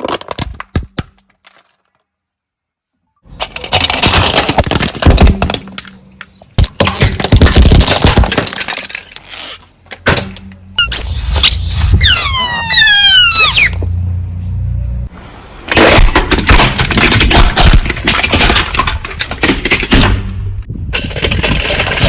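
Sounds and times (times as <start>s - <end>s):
quick falling squeaks: 10.8s - 13.8s.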